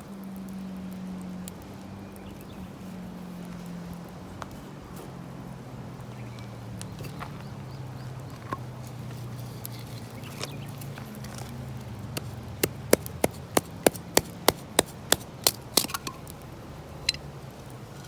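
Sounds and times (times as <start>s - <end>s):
wood chopping knocks: 12.1s - 16.3s.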